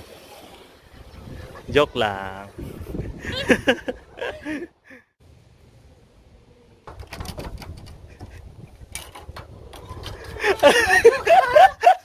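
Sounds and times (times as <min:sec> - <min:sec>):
people laughing: 0:03.2 - 0:04.7, 0:10.4 - 0:12.0.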